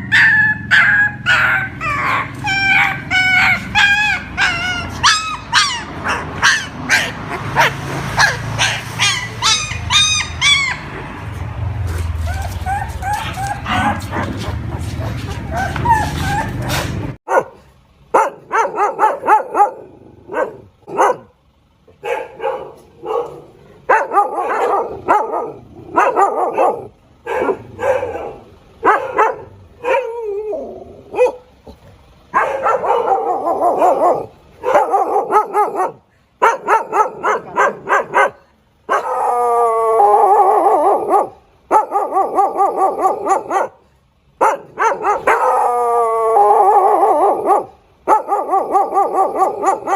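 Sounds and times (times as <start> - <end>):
dog barking: 0.1 - 10.9, 13.1 - 21.4, 22.0 - 30.4, 31.1 - 31.5, 32.3 - 39.3, 40.2 - 43.8, 44.4 - 45.8, 46.5 - 49.9
dog howling: 38.9 - 43.7, 44.8 - 49.9.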